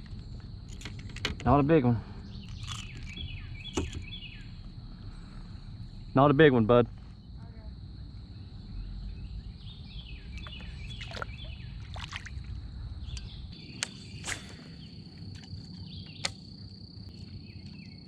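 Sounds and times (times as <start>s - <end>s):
low rumble of wind and water: 0.0s - 17.2s
short chirping calls: 2.2s - 4.6s, 8.8s - 11.9s.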